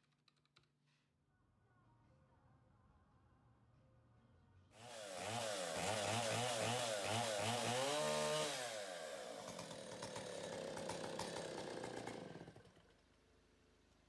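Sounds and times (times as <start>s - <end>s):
chainsaw engine revving: 4.8s - 12.8s.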